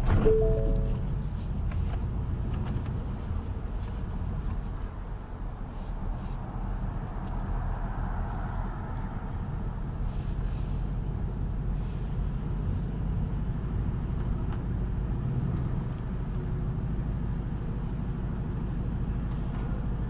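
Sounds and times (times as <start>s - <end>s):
car engine low rumble: 0.0s - 20.0s.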